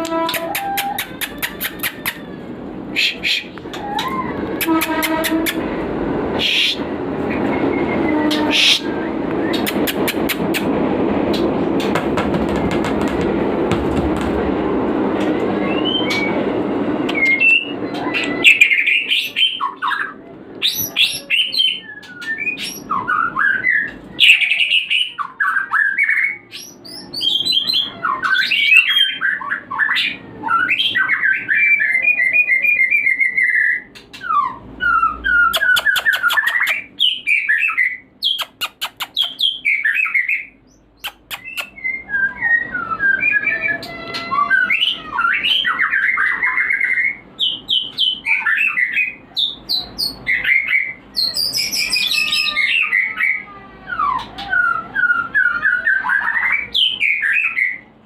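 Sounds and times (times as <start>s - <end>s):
steady rushing noise: 5.2s - 17.1s
bird singing whistled phrases: 15.6s - 16.4s, 17.1s - 57.8s.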